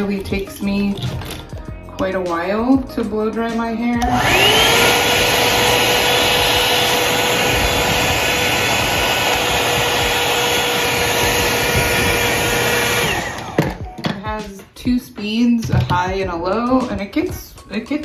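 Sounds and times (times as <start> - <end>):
hair dryer motor whining: 4.0 - 13.9.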